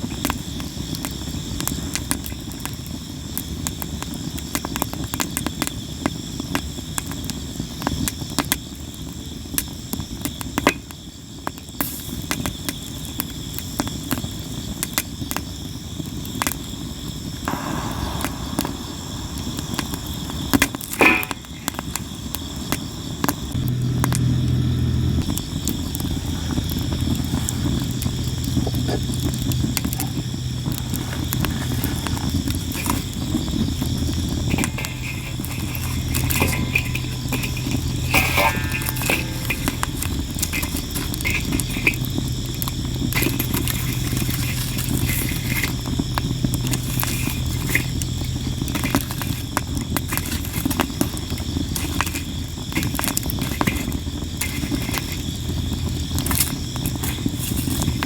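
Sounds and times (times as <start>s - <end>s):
campfire crackling and popping: 0.0s - 58.0s
insect chorus: 0.0s - 58.0s
low steady hum: 17.5s - 58.0s.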